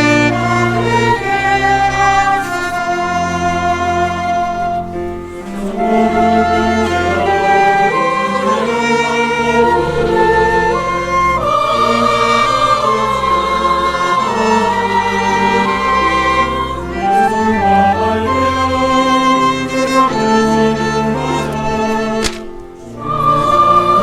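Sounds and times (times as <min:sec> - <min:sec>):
bowed strings: 0:00.0 - 0:24.0
choir singing: 0:00.0 - 0:24.0.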